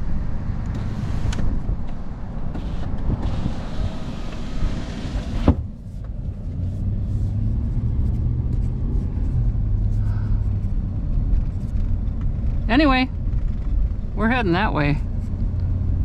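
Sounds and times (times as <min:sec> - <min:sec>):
truck engine and road rumble: 0:00.0 - 0:16.0
hissing wind noise: 0:00.7 - 0:05.7.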